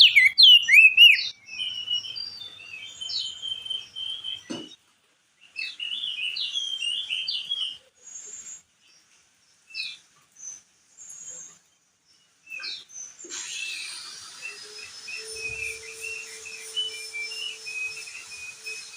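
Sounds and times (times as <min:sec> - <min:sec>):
bird warbling and chirping: 0:00.0 - 0:04.6, 0:12.5 - 0:18.9.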